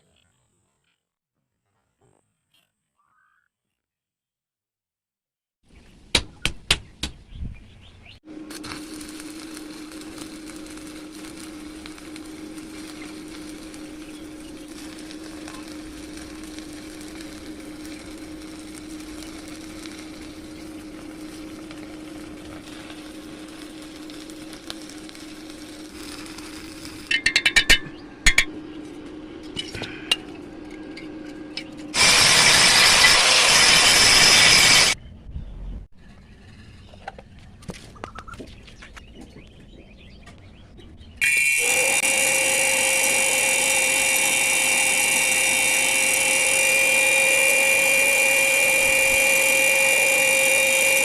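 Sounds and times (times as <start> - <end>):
loud rushing hiss: 32.0 - 35.0, 41.2 - 51.0
refrigerator compressor humming: 41.6 - 51.0.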